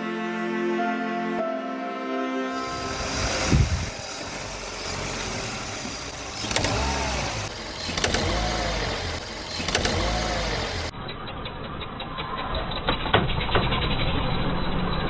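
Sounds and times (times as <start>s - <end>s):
car engine running: 2.6s - 10.9s.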